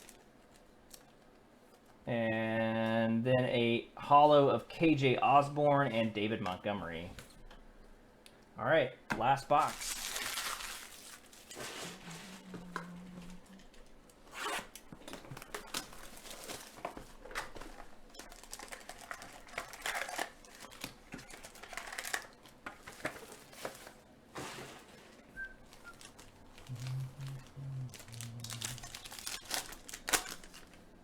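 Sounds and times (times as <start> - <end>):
tearing and crinkling plastic: 0.0 - 1.2, 9.6 - 12.5, 14.3 - 24.0, 25.6 - 30.9.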